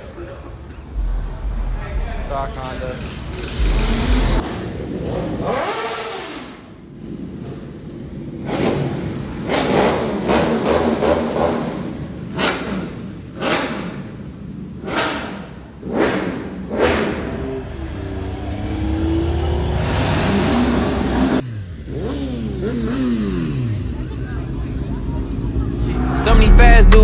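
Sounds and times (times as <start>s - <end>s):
car engines revving: 0.5s - 6.4s, 8.2s - 27.0s
sharp bangs: 0.9s - 4.4s, 25.9s - 27.0s.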